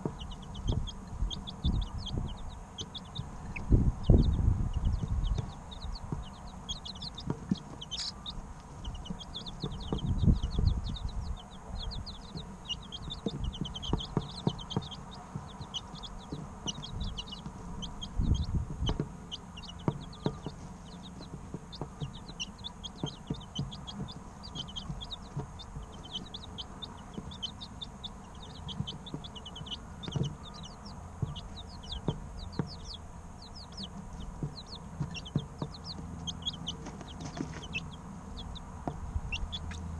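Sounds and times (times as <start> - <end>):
chicks peeping: 0.0 - 39.9
dull low thumps: 0.0 - 39.9.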